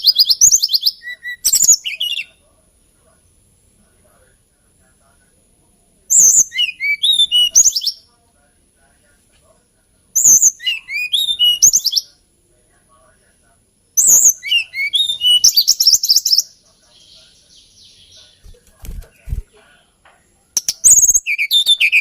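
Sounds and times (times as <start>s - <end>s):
bird singing whistled notes: 0.0s - 2.4s, 6.1s - 8.0s, 10.2s - 12.1s, 14.0s - 19.4s, 20.6s - 22.0s.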